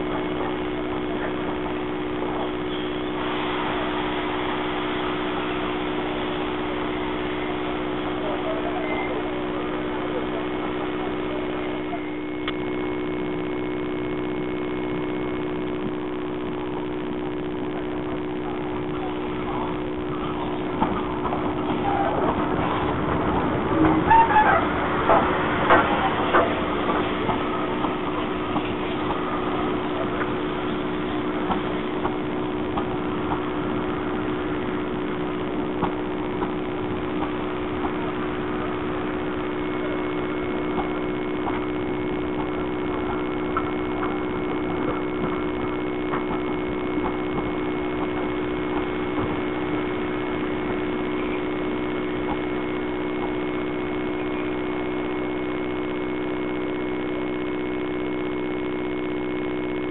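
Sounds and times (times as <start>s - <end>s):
steady low hum: 0.0s - 59.9s
train wheels clicking and creaking: 20.7s - 33.5s.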